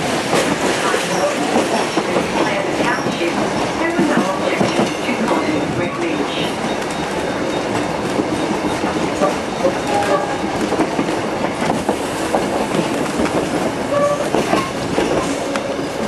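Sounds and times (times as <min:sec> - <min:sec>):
train wheels rattling on rails: 0:00.0 - 0:16.0
metallic squeals: 0:09.2 - 0:10.4.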